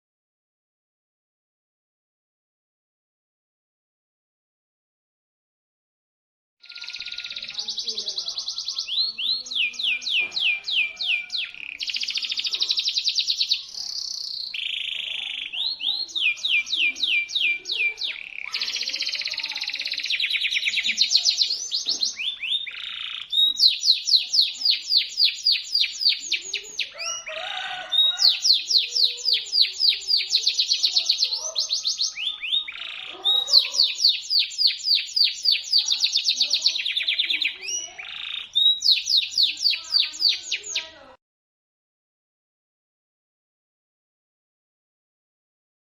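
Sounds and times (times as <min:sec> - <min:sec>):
canary singing trills: 0:06.6 - 0:41.2.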